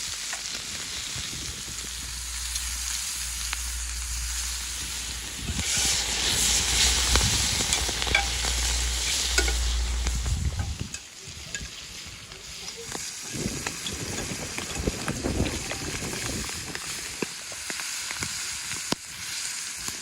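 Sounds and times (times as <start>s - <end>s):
food sizzling in a pan: 0.0s - 20.0s
stirring clicks and scrapes: 1.6s - 11.7s, 12.3s - 18.2s.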